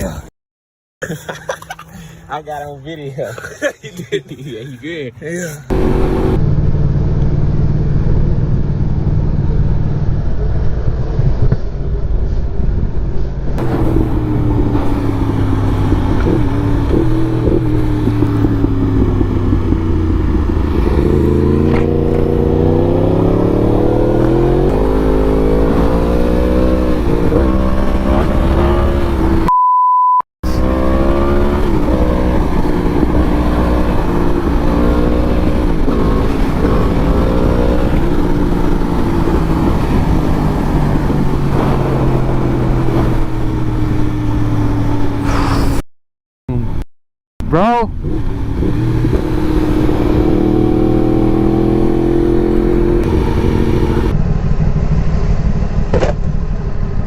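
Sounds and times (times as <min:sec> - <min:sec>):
motorcycle engine accelerating: 0:05.7 - 0:29.5, 0:30.4 - 0:45.6, 0:47.9 - 0:57.0
short high beep: 0:29.5 - 0:30.2.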